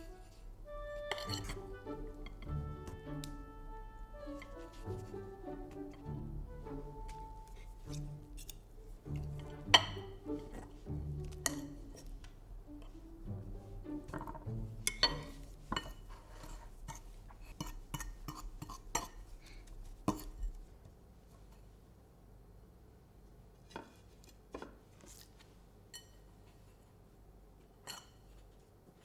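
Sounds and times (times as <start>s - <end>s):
cutlery and dishes clinking: 1.1s - 2.5s, 7.1s - 12.9s, 14.0s - 19.3s, 25.9s - 26.4s, 27.8s - 28.4s.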